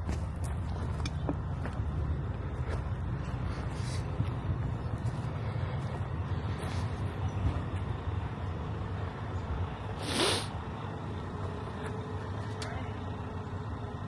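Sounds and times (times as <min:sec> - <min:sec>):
truck engine idling: 0:00.0 - 0:14.0
air release hiss: 0:10.0 - 0:10.6.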